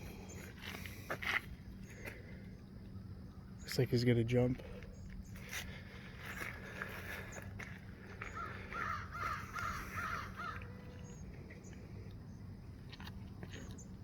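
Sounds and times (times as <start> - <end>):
bird harsh calls: 8.2 - 11.3.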